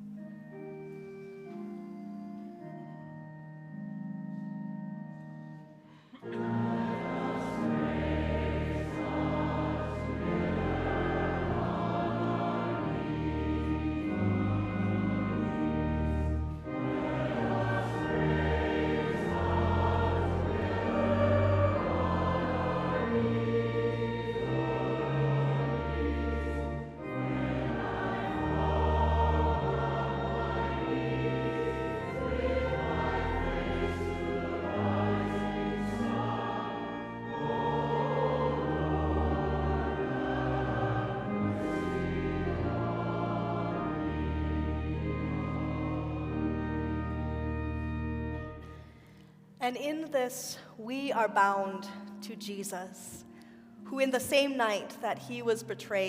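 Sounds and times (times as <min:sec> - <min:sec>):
instrumental accompaniment: 0:00.0 - 0:50.2
choir singing: 0:05.8 - 0:48.8.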